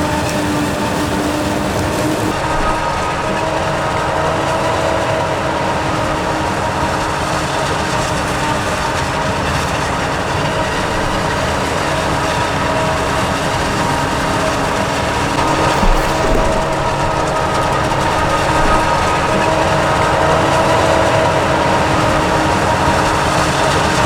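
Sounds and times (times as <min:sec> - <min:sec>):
constant whine of steady tones: 0:00.0 - 0:24.0
diesel engine running: 0:15.4 - 0:22.4.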